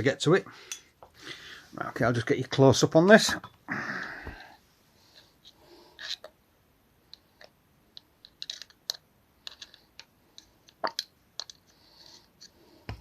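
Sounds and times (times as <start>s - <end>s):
light clicks and taps on metal parts: 7.1s - 11.8s.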